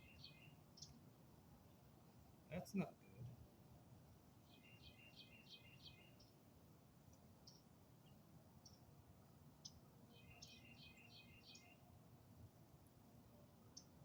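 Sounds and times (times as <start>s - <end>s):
bird chirps: 0.0s - 1.0s, 4.4s - 6.4s, 7.4s - 8.8s, 9.6s - 11.9s
songbird singing: 0.0s - 14.0s.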